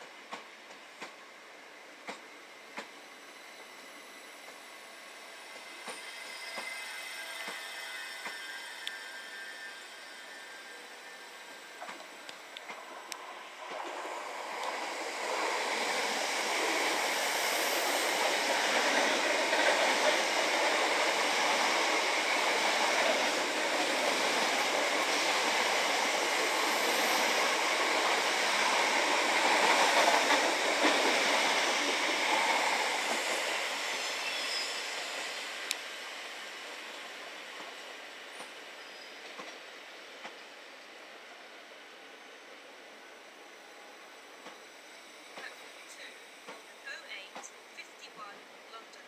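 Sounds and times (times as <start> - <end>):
train passing at speed: 0.0 - 49.0.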